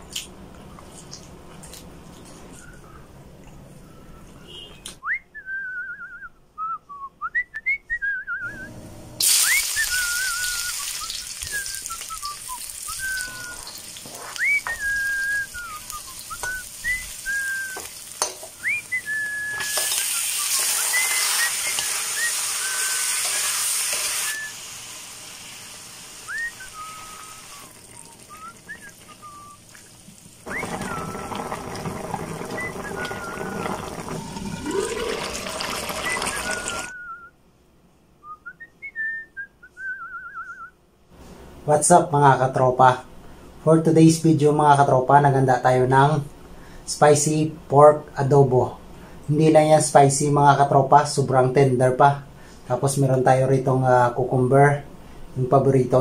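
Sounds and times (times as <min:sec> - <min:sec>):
whistled tune: 0:03.8 - 0:17.9, 0:18.6 - 0:23.3, 0:24.2 - 0:24.6, 0:26.3 - 0:29.6, 0:30.5 - 0:31.6, 0:32.4 - 0:37.4, 0:38.2 - 0:40.8
food sizzling in a wok: 0:09.2 - 0:36.9.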